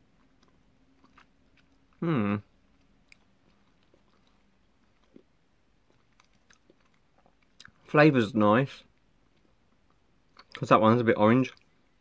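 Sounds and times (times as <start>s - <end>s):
person chewing gummy sweet: 0.0s - 7.9s, 9.2s - 10.6s
person humming: 2.0s - 2.5s.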